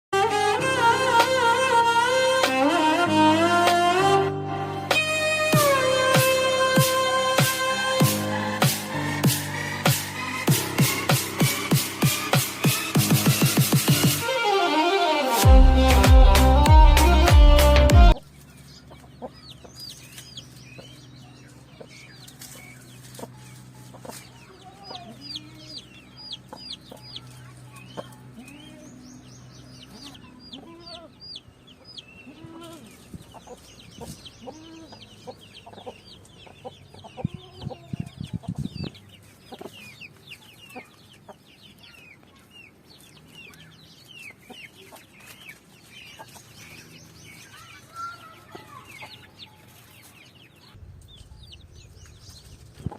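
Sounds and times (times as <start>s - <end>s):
chicks peeping: 4.8s - 14.3s, 15.4s - 52.9s
hen clucking: 18.1s - 29.0s, 29.7s - 50.2s.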